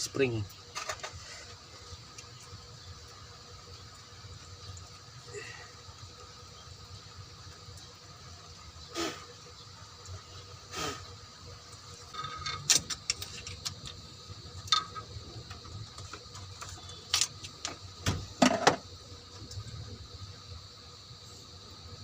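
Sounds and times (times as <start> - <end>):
metal tools clinking and knocking: 12.1 - 13.6.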